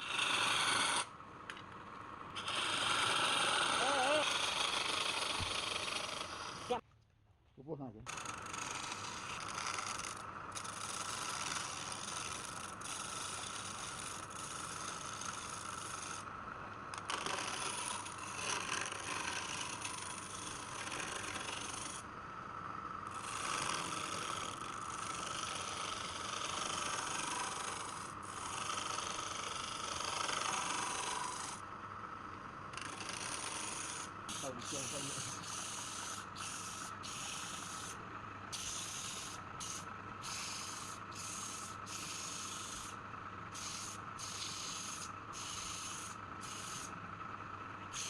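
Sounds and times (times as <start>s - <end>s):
lathe tool scraping spinning wood: 0.0s - 6.8s, 8.1s - 48.0s.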